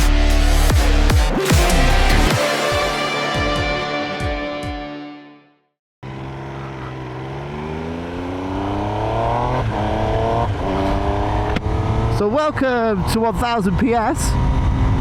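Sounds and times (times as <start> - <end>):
electronic intro music: 0.0 - 5.6
motorcycle engine pulling hard: 6.1 - 12.3.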